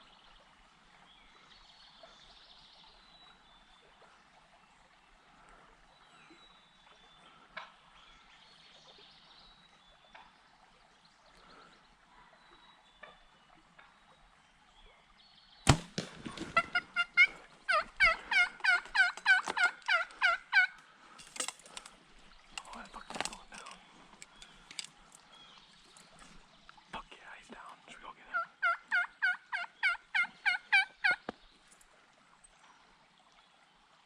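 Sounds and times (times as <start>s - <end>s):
faint songbirds: 0.0s - 34.0s
turkey calling: 16.0s - 20.8s, 28.3s - 31.3s.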